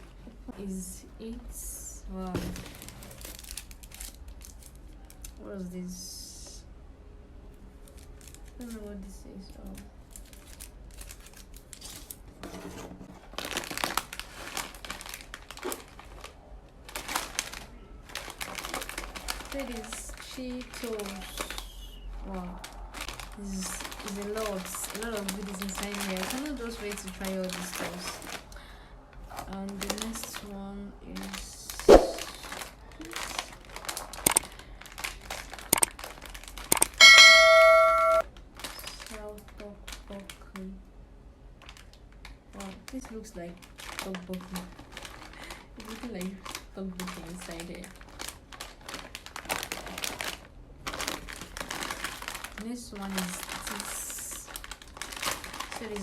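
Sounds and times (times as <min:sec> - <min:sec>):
plastic packaging crinkling: 0:02.3 - 0:05.4, 0:07.8 - 0:40.7, 0:41.6 - 0:56.0
bell-like chime: 0:37.0 - 0:38.2.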